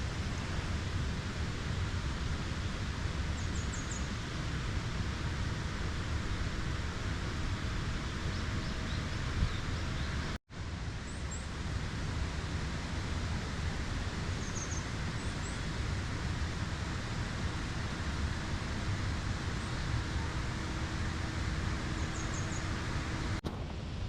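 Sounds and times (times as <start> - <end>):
faint bird chirps: 14.4 - 15.7, 22.0 - 23.3
heavy low rumble: 15.1 - 24.0.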